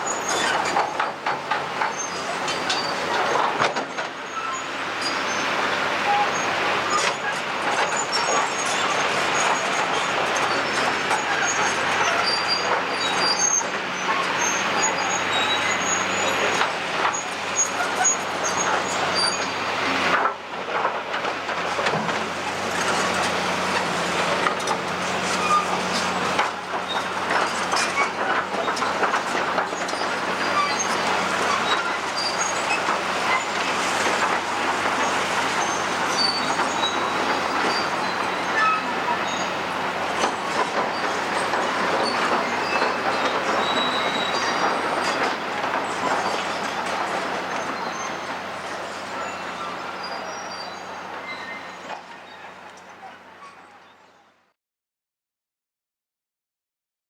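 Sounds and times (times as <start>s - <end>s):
excavator engine tone: 0.0s - 20.2s
excavator scraping and crunching rubble: 0.0s - 53.8s
metallic squeaks and clanks: 0.0s - 54.2s.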